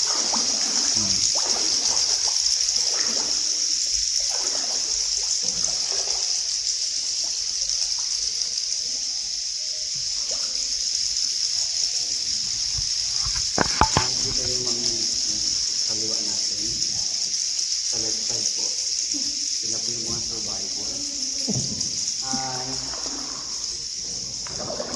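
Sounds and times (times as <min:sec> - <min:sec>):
steady high hiss: 0:00.0 - 0:24.9
water trickling and splashing: 0:00.0 - 0:24.9
faint voices: 0:13.6 - 0:17.3, 0:17.9 - 0:23.8.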